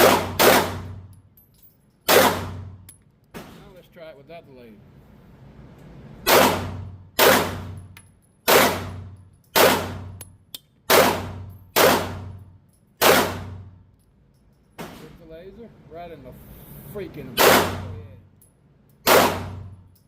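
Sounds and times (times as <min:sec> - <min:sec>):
pistol shots echoing indoors: 0:00.0 - 0:01.0, 0:02.1 - 0:02.8, 0:06.2 - 0:10.2, 0:10.9 - 0:12.4, 0:13.0 - 0:13.9, 0:17.4 - 0:17.9, 0:19.0 - 0:19.8.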